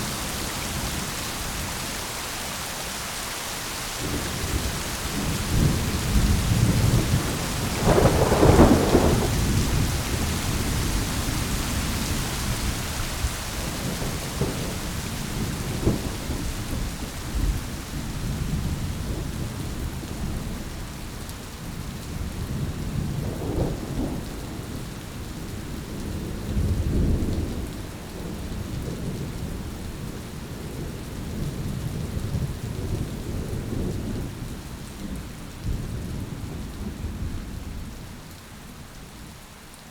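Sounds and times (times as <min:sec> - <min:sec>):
steady rain: 0:00.0 - 0:39.9
rolling thunder: 0:04.0 - 0:12.8.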